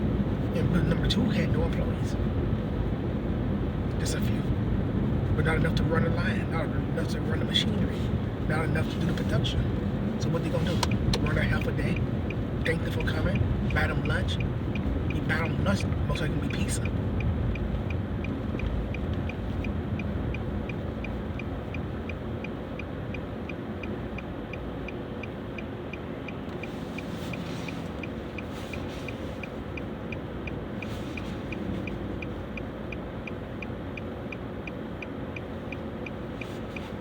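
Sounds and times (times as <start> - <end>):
engine and road rumble: 0.0 - 37.0
light ticking: 10.8 - 37.0.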